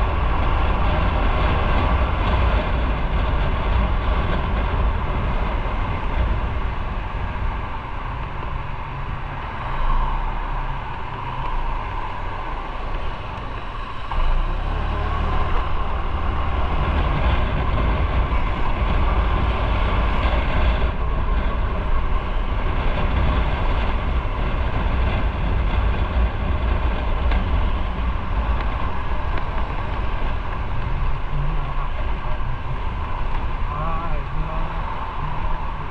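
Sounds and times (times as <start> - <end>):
motorcycle engine rumble: 0.0 - 35.9.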